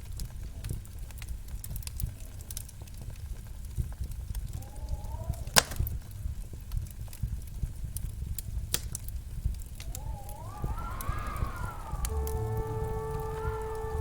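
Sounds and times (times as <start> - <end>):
wood fire crackling: 0.0 - 14.0
gliding music tones: 9.8 - 14.0.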